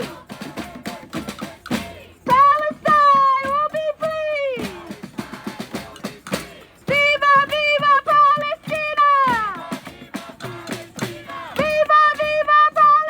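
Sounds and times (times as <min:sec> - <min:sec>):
high-pitched voice chanting slogan: 0:02.3 - 0:04.8, 0:06.9 - 0:09.6, 0:11.6 - 0:13.0.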